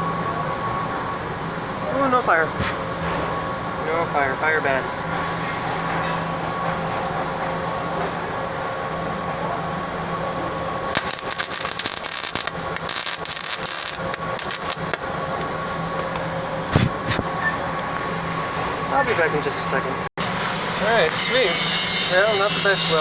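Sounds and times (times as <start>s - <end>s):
shop machinery hum: 0.0s - 23.0s
welder arc crackling: 10.8s - 18.0s.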